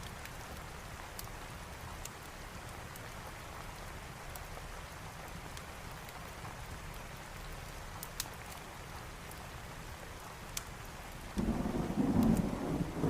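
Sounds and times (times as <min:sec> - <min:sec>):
rain hiss: 0:00.0 - 0:13.0
wood fire crackles: 0:00.0 - 0:13.0
thunder rumble: 0:11.4 - 0:13.0.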